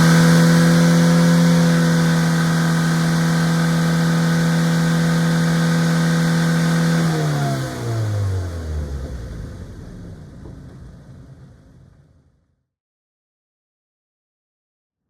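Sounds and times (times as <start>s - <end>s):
car exhaust revving: 0.0s - 12.0s.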